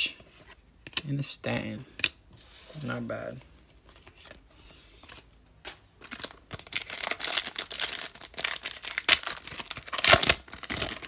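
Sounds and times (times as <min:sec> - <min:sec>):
foil wrapper crinkling and tearing: 0:06.0 - 0:11.0.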